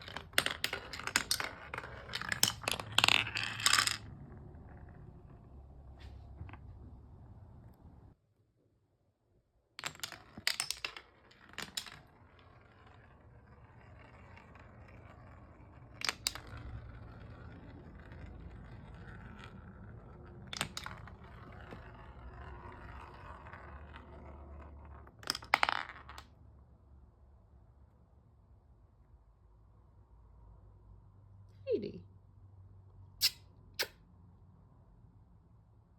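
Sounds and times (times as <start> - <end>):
marbles clacking on wood: 0.0 - 8.1, 9.8 - 26.4
marbles rolling on wooden track: 0.0 - 8.2, 9.8 - 26.4.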